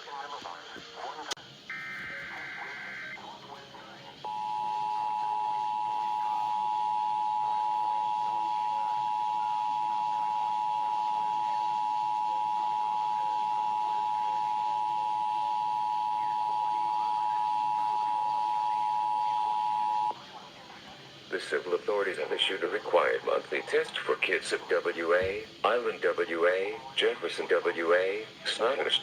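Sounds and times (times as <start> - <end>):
two-tone attention signal: 1.7 - 3.2, 4.2 - 20.1
warbling digital data burst: 1.7 - 3.4.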